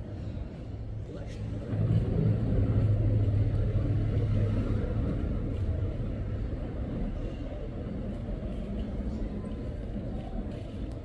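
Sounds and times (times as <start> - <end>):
low rumble: 1.1 - 9.7.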